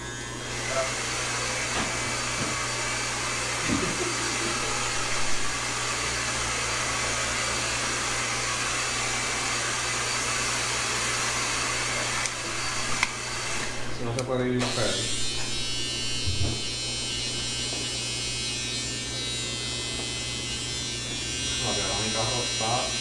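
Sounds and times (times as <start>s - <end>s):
hair dryer running: 0.0s - 23.0s.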